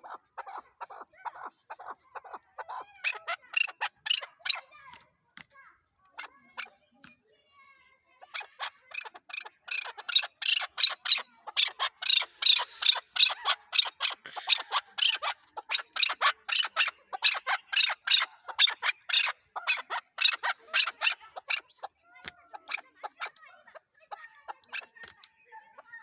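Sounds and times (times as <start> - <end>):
partridge calling harsh notes: 0.0 - 4.7, 8.4 - 22.0.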